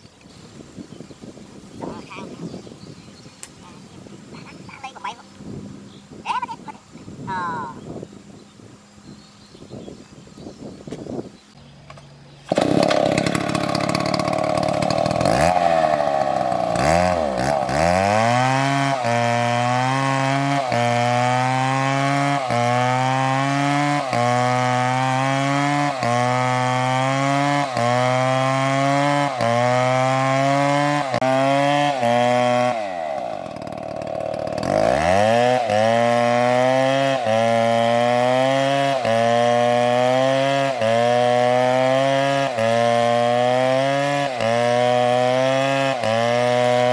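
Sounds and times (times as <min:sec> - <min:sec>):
chainsaw cutting a tree: 0:12.4 - 0:46.9.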